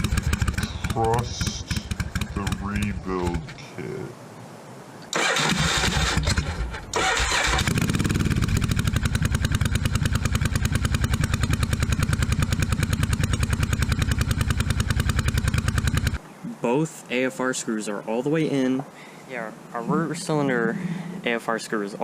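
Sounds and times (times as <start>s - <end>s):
electric starter cranking: 0.0s - 2.6s, 5.1s - 16.2s
motorcycle engine idling: 0.0s - 2.9s, 7.3s - 16.2s.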